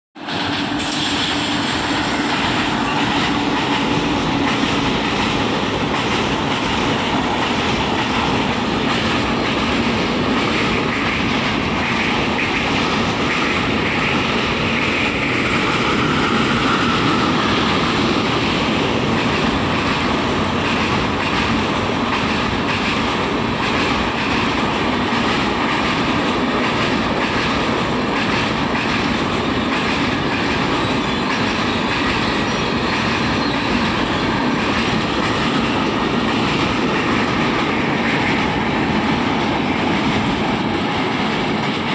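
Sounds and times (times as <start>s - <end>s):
train wheels rumbling over bridge: 0.2s - 41.9s.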